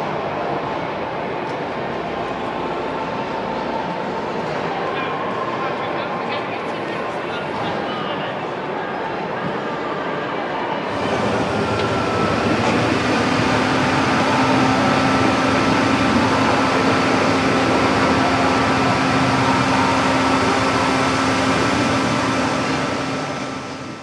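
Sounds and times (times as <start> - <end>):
mechanical rushing noise: 10.9 - 24.0.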